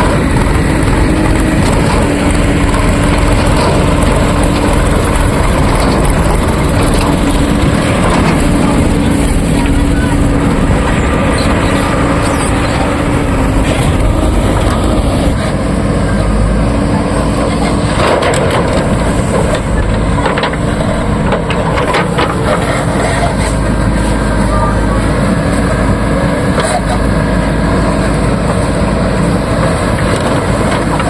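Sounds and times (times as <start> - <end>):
sharp knocks and scraping: 0.0 - 15.4, 17.6 - 23.8
diesel engine running under load: 0.0 - 31.0.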